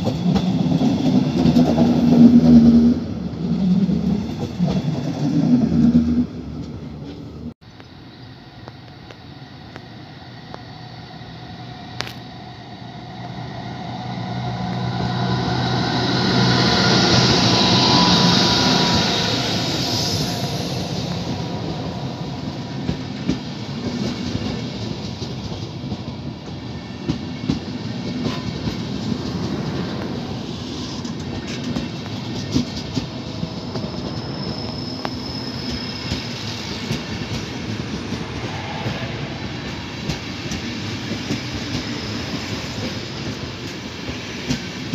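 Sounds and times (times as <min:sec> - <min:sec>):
train rolling over tracks: 0:00.0 - 0:44.9
high wheel squeal: 0:10.7 - 0:22.5, 0:30.3 - 0:40.0
wheels clicking over rail joints: 0:30.8 - 0:34.2.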